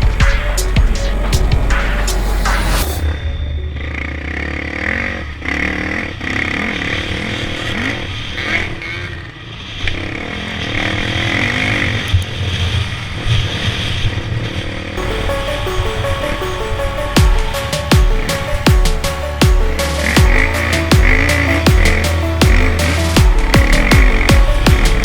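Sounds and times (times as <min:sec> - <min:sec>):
motocross bike engines revving: 0:04.6 - 0:12.1.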